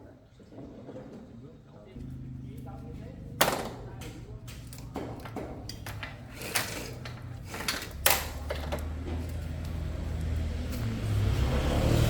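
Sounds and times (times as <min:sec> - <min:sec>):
small motorcycle engine humming: 0:02.0 - 0:12.0
sharp metallic clicks and knocks: 0:03.4 - 0:09.8.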